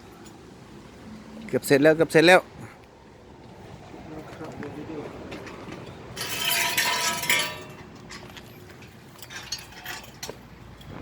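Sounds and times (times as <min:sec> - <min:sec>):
loud metal clatter: 0:06.2 - 0:08.3.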